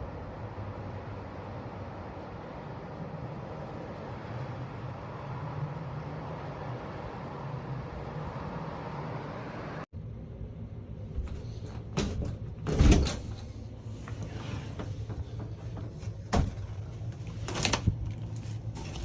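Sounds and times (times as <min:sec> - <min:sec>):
steady rushing noise: 0:00.0 - 0:11.2.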